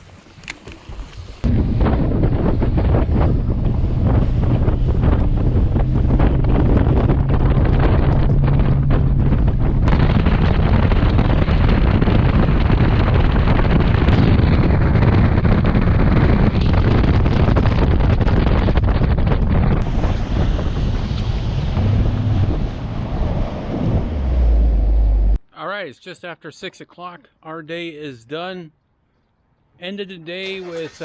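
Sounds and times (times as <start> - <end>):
wind buffeting microphone: 0.8 - 24.8
boat motor running: 1.4 - 23.1.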